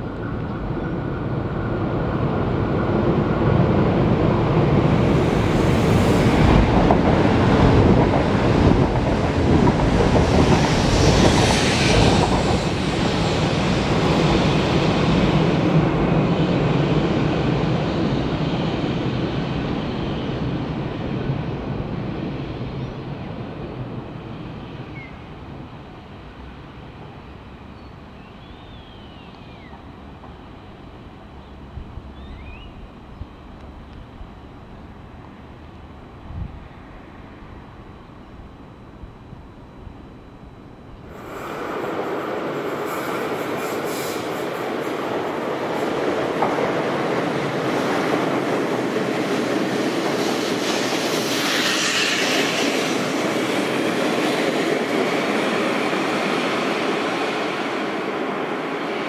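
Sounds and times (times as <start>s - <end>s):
electric train rumble: 0.0s - 59.0s
train wheels screeching: 41.1s - 46.2s, 49.2s - 56.5s.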